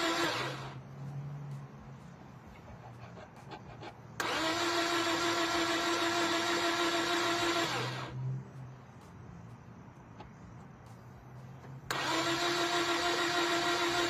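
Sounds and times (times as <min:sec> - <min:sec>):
starter motor cranking engine: 0:00.0 - 0:00.8, 0:03.6 - 0:08.2, 0:11.9 - 0:14.0.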